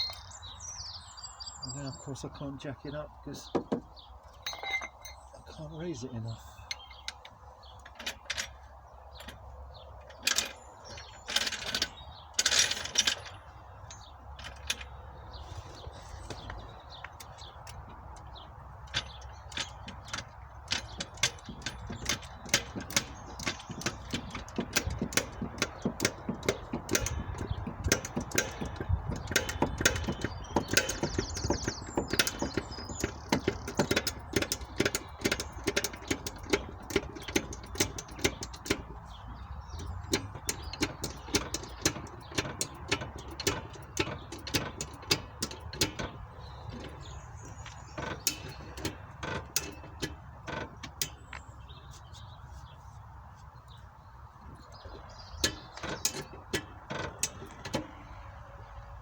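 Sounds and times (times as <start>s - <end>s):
car jack clicking: 16.3s - 51.8s, 54.7s - 58.4s.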